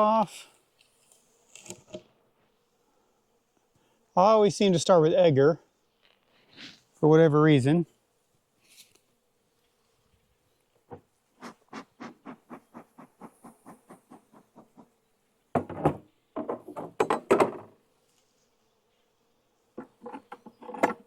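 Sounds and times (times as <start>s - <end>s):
quick wooden taps: 10.9s - 14.9s
wooden knocks on beehive: 10.9s - 17.8s, 19.8s - 21.0s.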